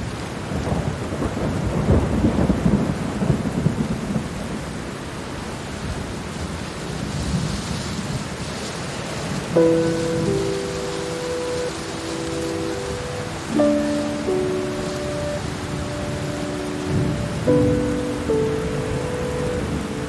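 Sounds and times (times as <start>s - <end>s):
steady rain: 0.0s - 20.0s
rolling thunder: 0.4s - 4.8s, 9.2s - 20.0s.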